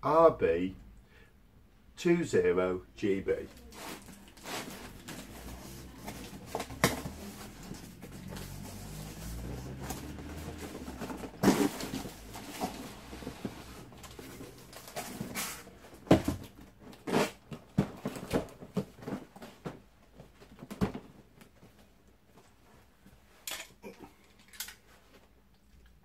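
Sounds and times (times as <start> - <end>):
cardboard box being handled: 3.5 - 15.4.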